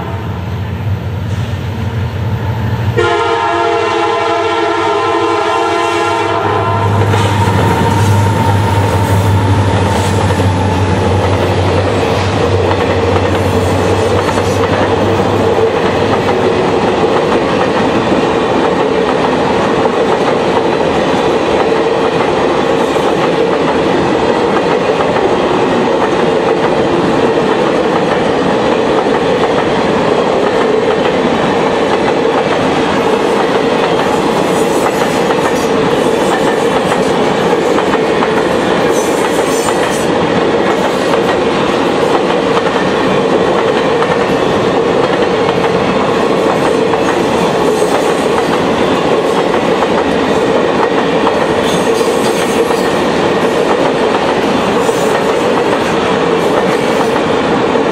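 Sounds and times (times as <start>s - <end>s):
train cars clickety-clack: 2.4s - 57.9s
locomotive horn chord: 3.0s - 9.7s
locomotive engines passing: 6.5s - 28.7s.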